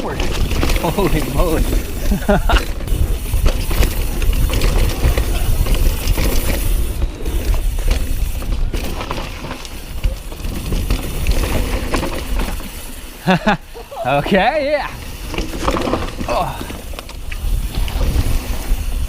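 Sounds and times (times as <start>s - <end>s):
wind rumble on microphone: 0.0s - 9.2s, 15.0s - 19.0s
bike rattling over bumps: 0.0s - 19.0s
bike tyres rolling on dirt: 0.0s - 19.0s.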